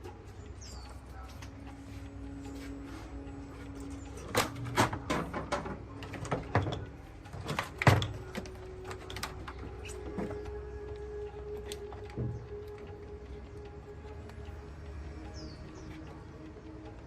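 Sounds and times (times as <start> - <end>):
sharp clicks and knocks: 3.6 - 13.1.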